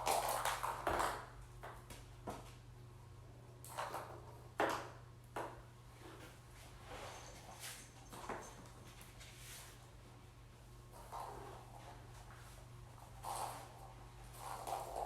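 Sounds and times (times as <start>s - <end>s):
kittens scuffling: 10.8s - 15.0s.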